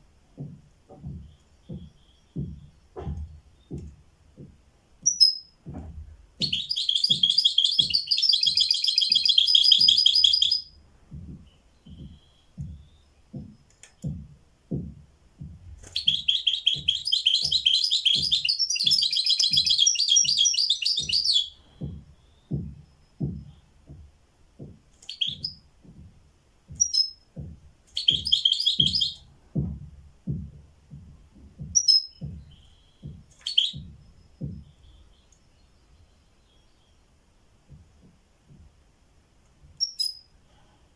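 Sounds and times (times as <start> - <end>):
soft low thud: 0.0 - 8.1, 9.8 - 19.8, 21.0 - 35.2
songbird trilling: 5.0 - 5.6, 6.4 - 10.8, 16.0 - 22.6, 25.1 - 25.6, 26.8 - 27.2, 28.0 - 29.3, 31.8 - 36.8, 39.8 - 40.3.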